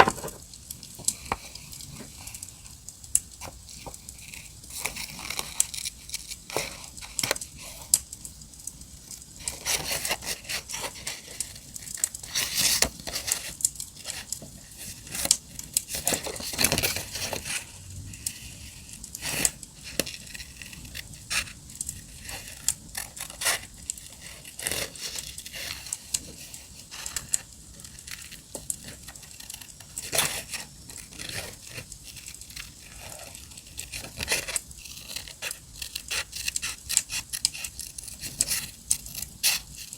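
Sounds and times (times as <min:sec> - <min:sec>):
paper tearing and crinkling: 0:09.4 - 0:17.7, 0:18.3 - 0:39.9.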